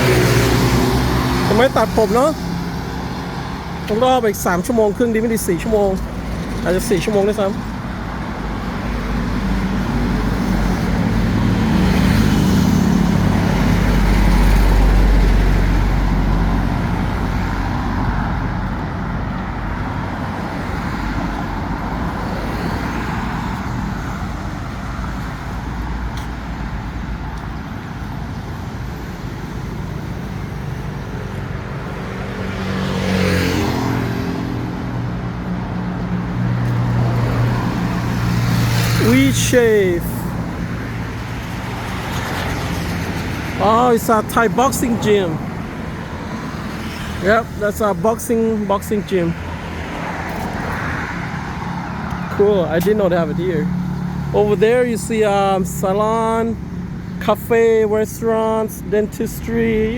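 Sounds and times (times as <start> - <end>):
vehicle passing close: 0.0 - 7.5, 28.9 - 57.0
street traffic passing: 0.0 - 59.9.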